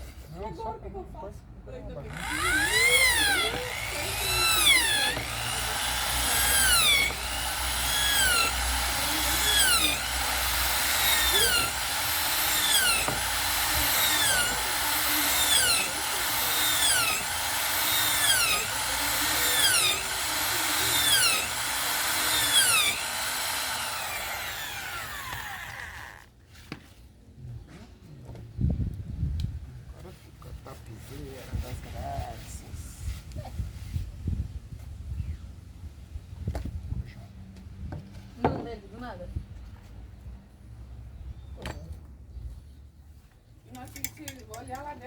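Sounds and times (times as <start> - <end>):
electric power tool running: 2.1 - 26.3.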